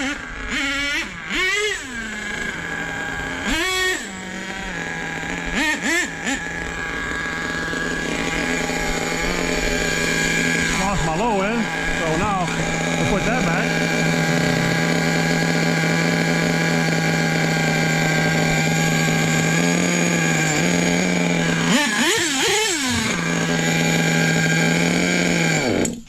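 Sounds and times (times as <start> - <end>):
small model engine running high: 0.0 - 26.0.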